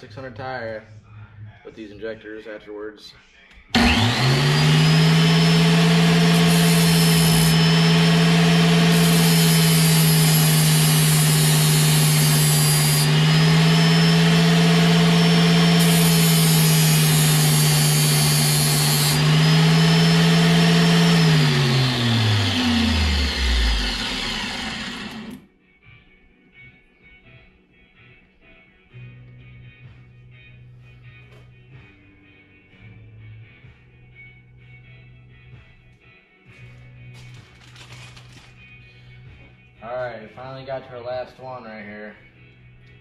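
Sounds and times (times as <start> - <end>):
electric power tool motor running: 3.8 - 25.4.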